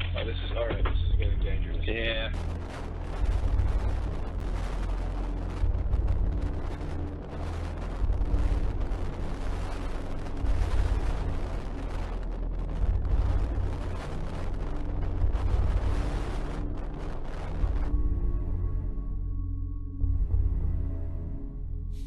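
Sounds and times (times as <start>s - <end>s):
wind rumble: 0.0s - 21.8s
heavy waves against ship: 1.3s - 17.9s.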